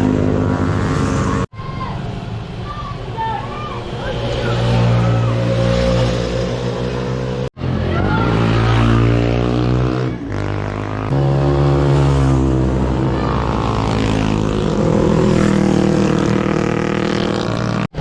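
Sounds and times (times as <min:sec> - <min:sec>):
motorcycle engine accelerating: 0:03.9 - 0:18.0.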